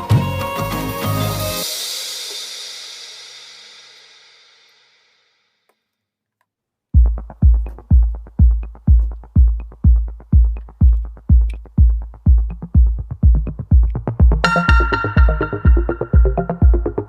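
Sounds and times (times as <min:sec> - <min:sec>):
electronic bass drum beat: 0:07.0 - 0:17.0.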